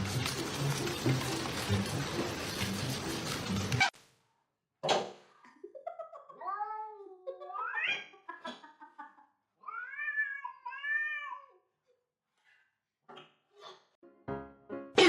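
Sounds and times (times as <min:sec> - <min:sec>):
cat meowing: 0:09.6 - 0:11.6.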